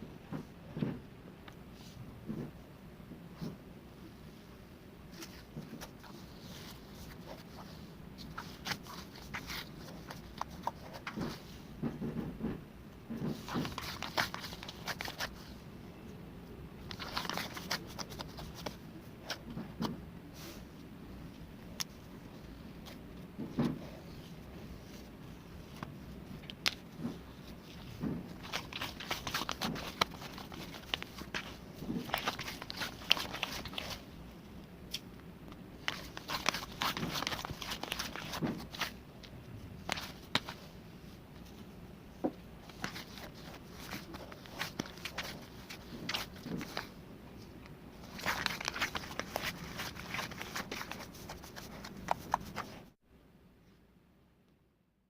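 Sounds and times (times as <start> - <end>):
rustling: 5.1 - 15.6, 16.8 - 19.8, 21.8 - 34.4, 35.8 - 39.0, 39.8 - 53.0.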